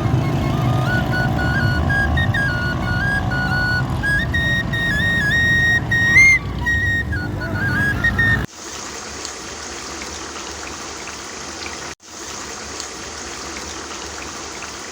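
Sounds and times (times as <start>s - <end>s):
flute music: 0.0s - 8.5s
curry sizzling and bubbling: 8.5s - 14.9s.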